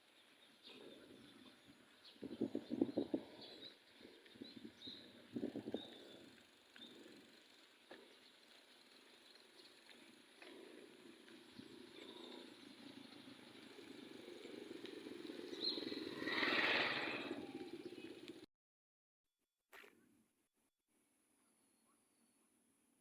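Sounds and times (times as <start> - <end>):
vehicle engine passing by: 12.8 - 18.4.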